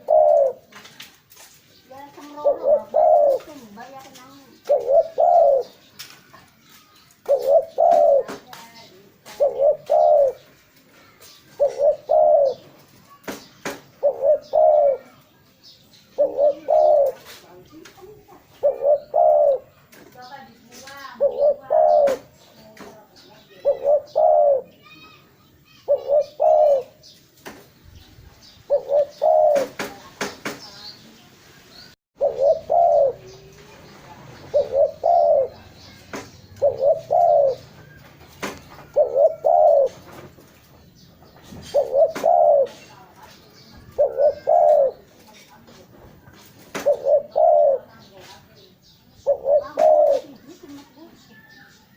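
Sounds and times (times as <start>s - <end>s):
dove cooing: 0.0s - 0.9s, 2.0s - 5.9s, 7.2s - 13.2s, 13.9s - 15.3s, 16.1s - 19.9s, 20.9s - 25.0s, 25.8s - 27.2s, 28.4s - 30.1s, 32.2s - 33.7s, 34.4s - 38.1s, 38.7s - 40.3s, 41.6s - 45.5s, 46.6s - 48.6s, 49.2s - 51.5s.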